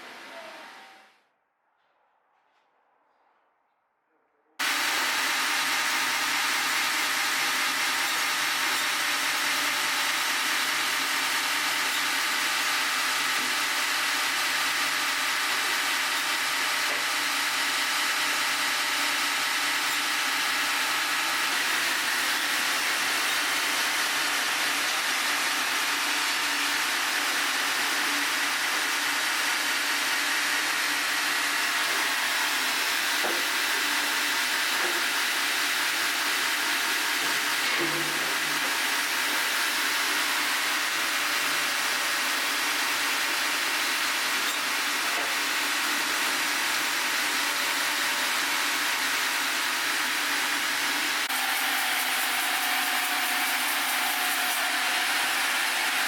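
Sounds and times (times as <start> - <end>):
saw cutting log hissing: 50.9 - 56.0.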